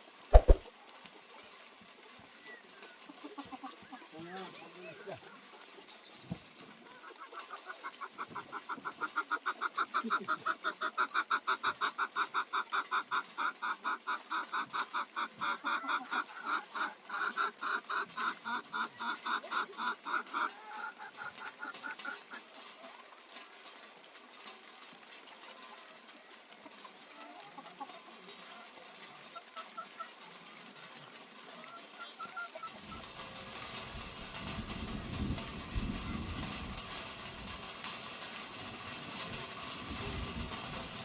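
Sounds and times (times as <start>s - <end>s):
chicken clucking: 0.3s - 0.6s, 2.0s - 23.0s, 26.6s - 38.0s.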